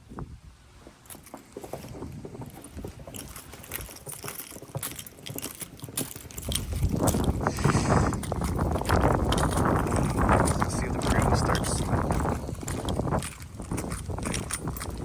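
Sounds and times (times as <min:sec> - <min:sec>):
footsteps crunching through snow: 0:07.0 - 0:08.7.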